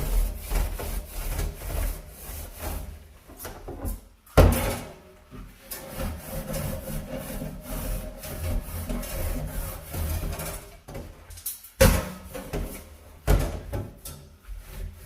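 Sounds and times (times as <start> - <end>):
brush scrubbing stove surface: 0.0 - 3.4, 5.4 - 10.8, 14.4 - 15.0.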